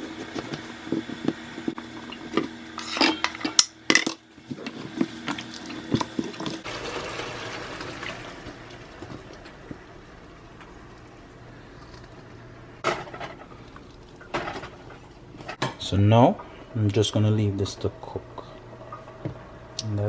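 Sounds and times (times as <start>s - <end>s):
pot and utensils clattering: 2.0s - 6.6s, 12.8s - 15.8s.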